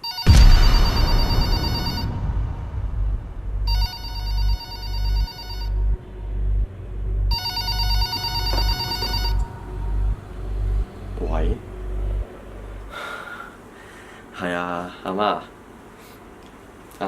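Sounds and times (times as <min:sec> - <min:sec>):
mobile phone ringtone: 0:00.0 - 0:00.3, 0:03.7 - 0:05.7, 0:07.3 - 0:09.6
low pulsing hum: 0:00.3 - 0:13.8.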